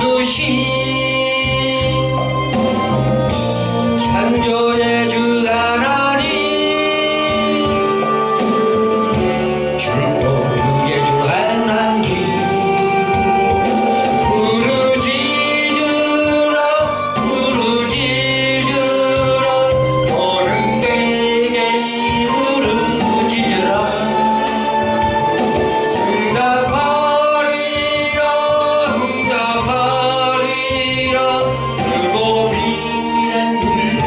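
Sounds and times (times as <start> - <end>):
instrumental accompaniment: 0.0 - 34.0.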